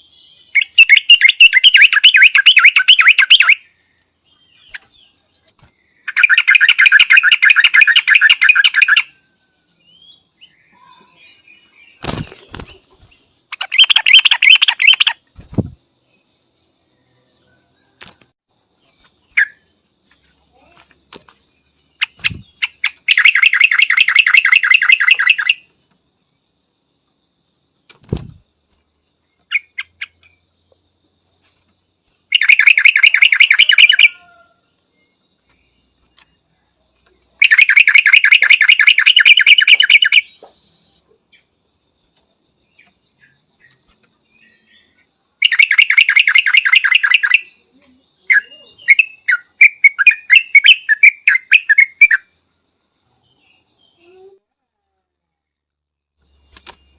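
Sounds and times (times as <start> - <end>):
bird chattering calls: 12.0 - 15.8, 32.3 - 34.3, 37.4 - 40.5
single bird chirps: 17.4 - 25.8.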